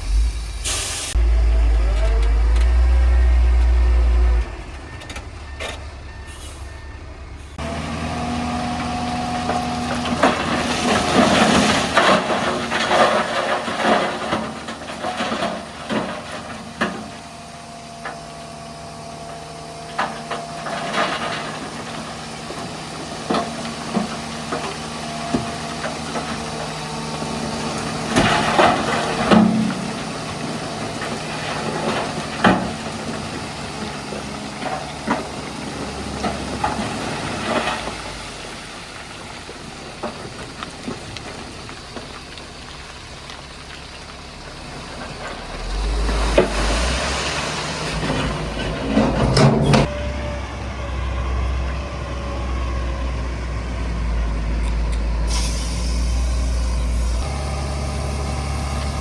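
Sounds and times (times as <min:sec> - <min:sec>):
air brakes hissing: 0:00.0 - 0:01.2, 0:06.3 - 0:06.8, 0:55.2 - 0:58.8
deep rumbling engine: 0:00.0 - 0:59.0
diesel engine hum: 0:00.0 - 0:59.0.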